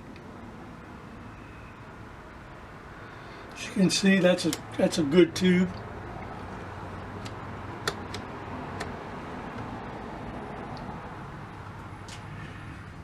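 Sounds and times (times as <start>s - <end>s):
hands clicking and tapping tester: 7.2s - 9.7s.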